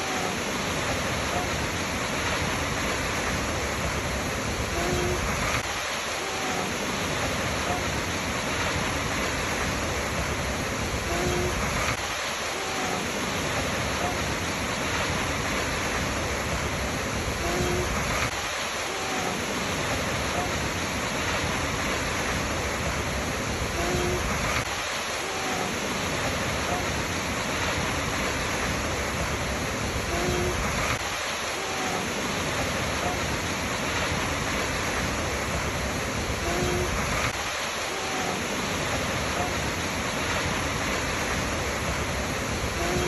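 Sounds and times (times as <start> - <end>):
waterfall roaring: 0.0 - 43.0.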